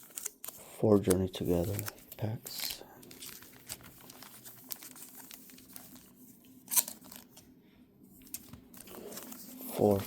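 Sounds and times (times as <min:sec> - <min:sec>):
foil wrappers crinkling: 0:01.3 - 0:07.4.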